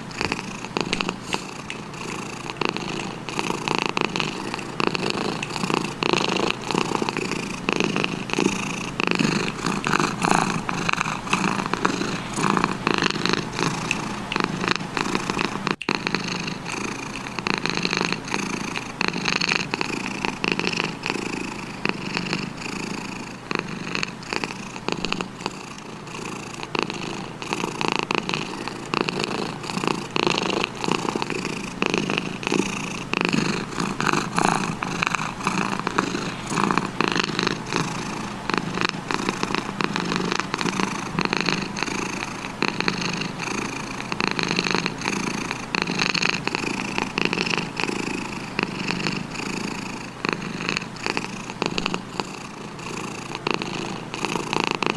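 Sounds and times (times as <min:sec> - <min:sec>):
cat purring: 0:00.0 - 0:54.9.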